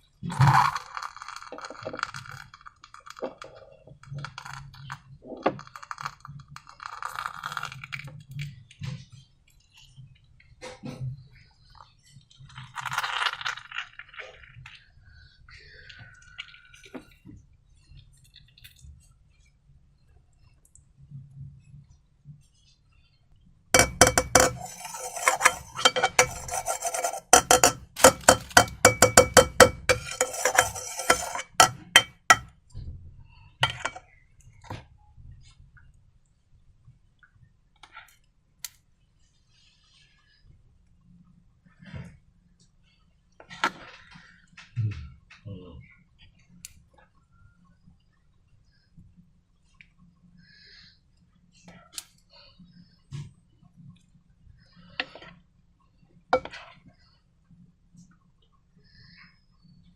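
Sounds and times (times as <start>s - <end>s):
hard objects clinking against glass: 23.8s - 32.5s, 33.6s - 34.0s.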